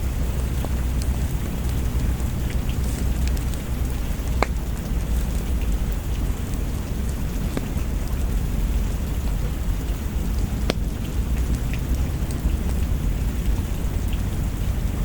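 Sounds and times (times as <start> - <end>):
deep low rumble: 0.0 - 15.0
steady rain: 0.0 - 15.0.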